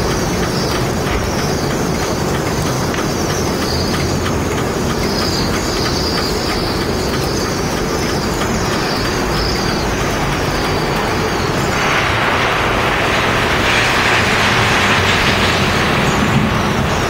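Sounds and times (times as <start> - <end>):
birds giving high calls: 5.0 - 12.0
loud low rumble: 8.2 - 17.0.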